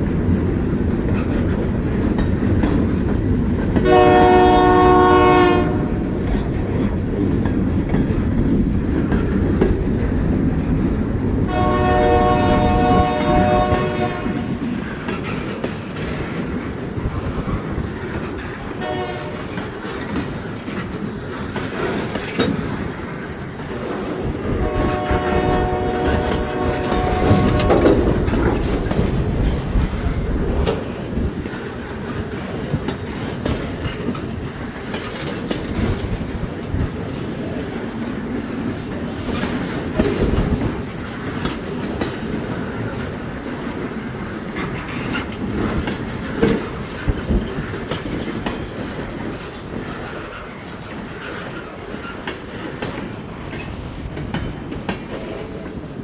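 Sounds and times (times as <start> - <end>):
freight train rolling: 0.0 - 56.0
train wheels clicking over rails: 0.0 - 56.0
locomotive horn: 3.8 - 6.1, 11.5 - 14.6, 18.8 - 19.6, 24.5 - 28.4.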